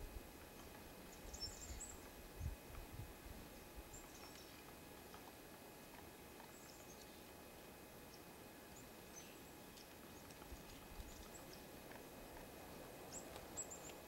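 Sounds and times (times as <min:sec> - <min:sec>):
small birds chirping: 0:00.5 - 0:02.6, 0:03.8 - 0:05.2, 0:06.4 - 0:07.3, 0:08.1 - 0:11.8, 0:13.0 - 0:14.0.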